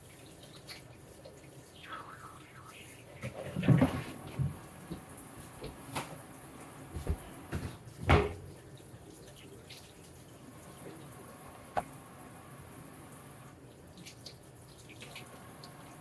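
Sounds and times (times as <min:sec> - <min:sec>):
faint water hiss: 0:00.0 - 0:16.0.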